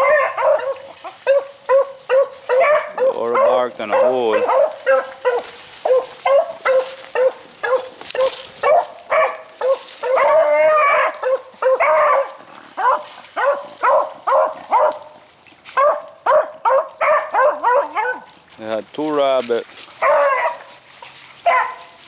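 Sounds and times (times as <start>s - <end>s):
dogs baying and barking: 0.0s - 18.5s, 19.8s - 22.0s.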